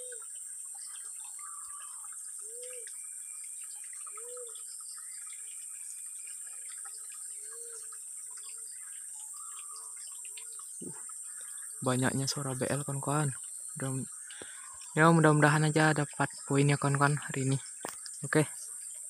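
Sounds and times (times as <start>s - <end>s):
bird hooting coos: 0.0s - 0.3s, 1.3s - 2.9s, 4.1s - 4.6s, 7.4s - 7.9s
insects buzzing: 0.0s - 19.0s.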